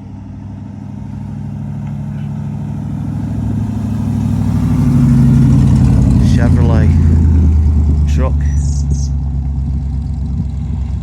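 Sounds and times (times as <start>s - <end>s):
pickup truck engine running: 0.0s - 11.0s.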